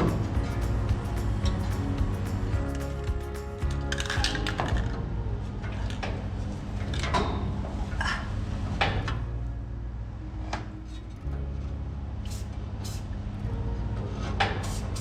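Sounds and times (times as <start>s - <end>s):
objects knocking and clattering: 0.0s - 5.0s.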